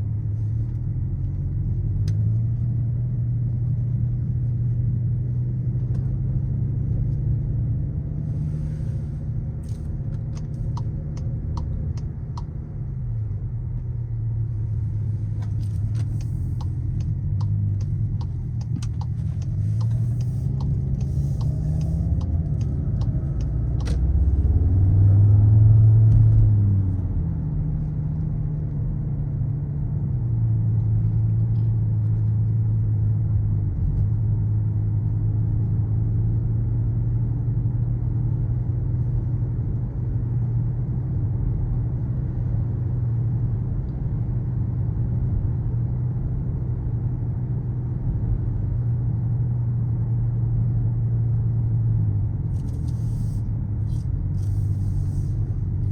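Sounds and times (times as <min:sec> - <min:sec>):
car engine accelerating and cruising: 0:00.0 - 0:55.9
turn signal ticking: 0:09.5 - 0:24.8.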